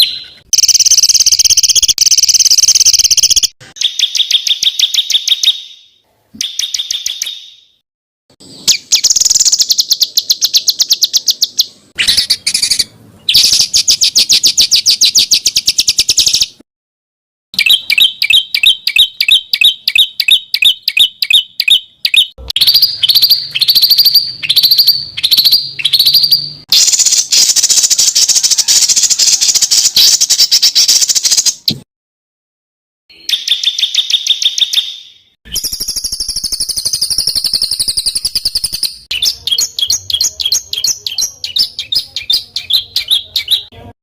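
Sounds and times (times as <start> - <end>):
repeated sharp bird notes: 0.0 - 7.8, 8.4 - 16.6, 17.6 - 31.8, 33.1 - 44.0
songbird trills and chatter: 8.6 - 16.6, 17.6 - 31.6, 33.2 - 43.9.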